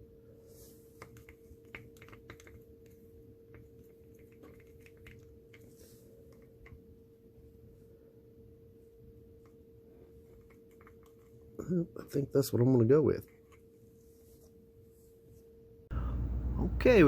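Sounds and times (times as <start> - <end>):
small clicks and taps: 1.0 - 5.7
steady low hum: 13.2 - 17.0.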